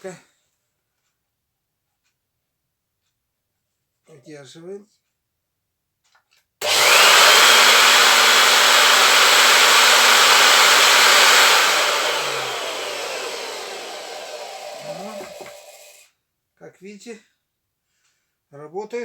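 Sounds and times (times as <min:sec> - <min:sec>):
vacuum cleaner motor whining: 0:06.6 - 0:16.0.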